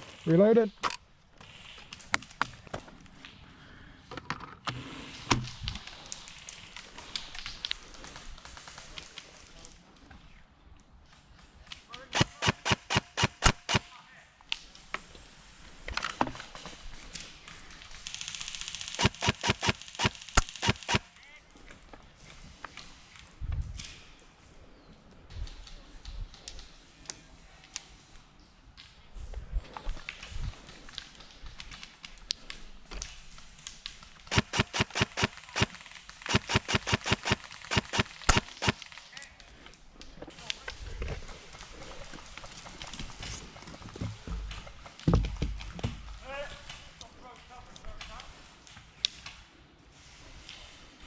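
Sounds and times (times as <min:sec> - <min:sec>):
airsoft gun rapid fire burst: 0:12.2 - 0:13.9, 0:18.2 - 0:21.1, 0:34.3 - 0:38.9
airsoft gun single shots: 0:12.2 - 0:13.9, 0:19.0 - 0:21.1, 0:34.3 - 0:38.8.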